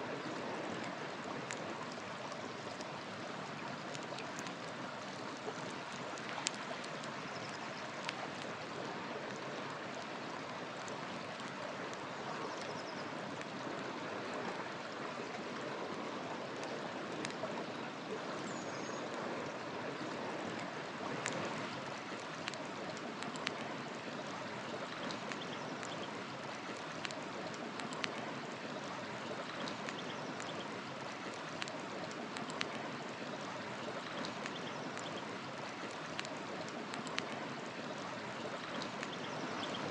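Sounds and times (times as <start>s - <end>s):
river water flowing: 0.0s - 39.9s
faint bird chirps: 18.4s - 19.1s
wood fire crackling: 26.8s - 30.5s.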